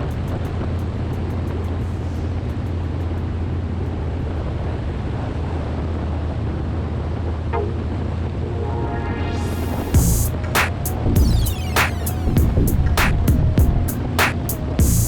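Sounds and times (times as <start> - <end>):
rushing noise: 7.6 - 14.8.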